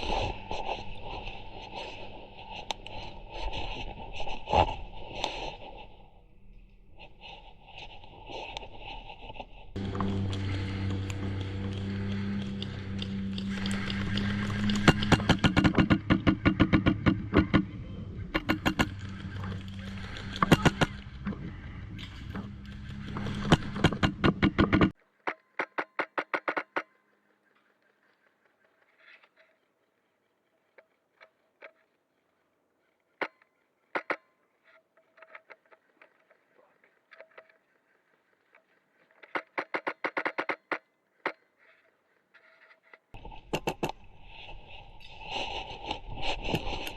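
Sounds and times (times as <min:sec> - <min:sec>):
steady low hum: 0:09.7 - 0:25.0.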